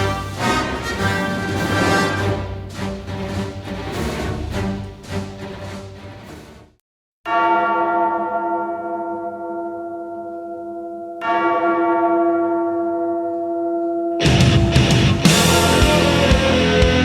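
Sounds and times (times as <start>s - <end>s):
large bell tolling: 14.2s - 17.0s.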